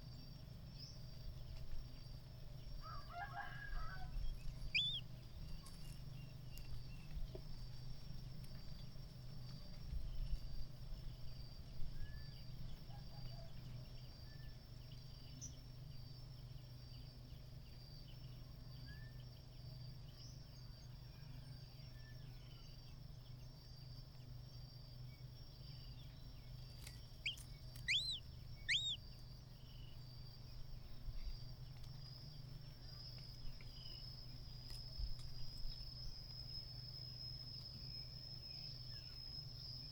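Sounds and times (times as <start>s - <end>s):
insect trill: 0.0s - 39.9s
bird chirps: 4.3s - 5.1s, 26.9s - 29.0s.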